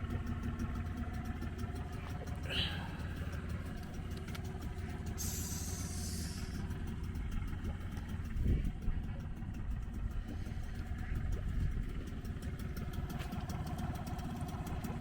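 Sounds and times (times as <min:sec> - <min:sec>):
outboard motor running: 0:00.0 - 0:15.0
burst of hiss: 0:05.2 - 0:06.6.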